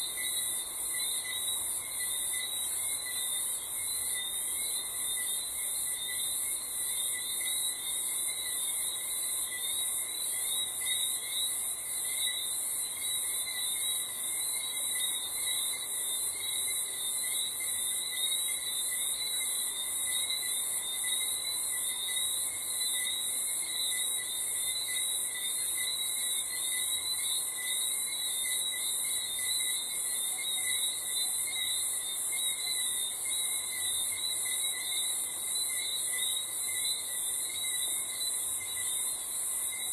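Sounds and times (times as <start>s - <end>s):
crickets trilling: 0.0s - 39.9s
lower cricket trills: 0.0s - 39.9s.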